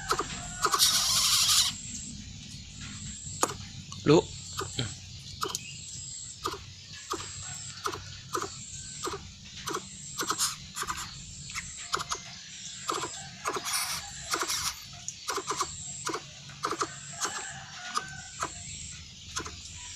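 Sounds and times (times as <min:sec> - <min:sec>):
faint high insect trill: 0:00.0 - 0:19.9
bird making sharp clicks: 0:03.4 - 0:05.7, 0:06.4 - 0:12.3, 0:12.9 - 0:18.6, 0:19.3 - 0:19.6.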